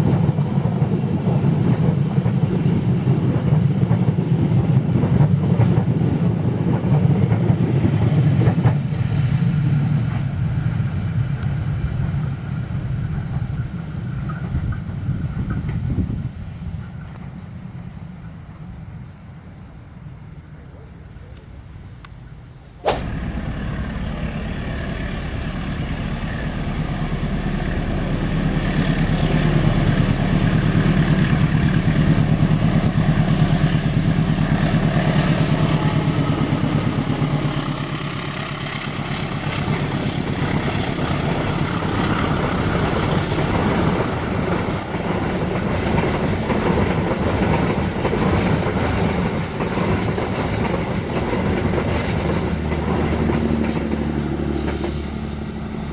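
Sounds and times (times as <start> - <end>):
train passing on track: 0.0 - 55.9
sharp click: 22.8 - 23.1.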